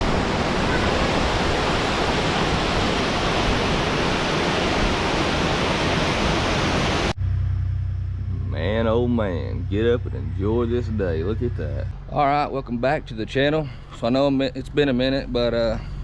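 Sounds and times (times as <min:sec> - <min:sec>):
waterfall rushing: 0:00.0 - 0:07.2
low steady hum: 0:07.1 - 0:16.0.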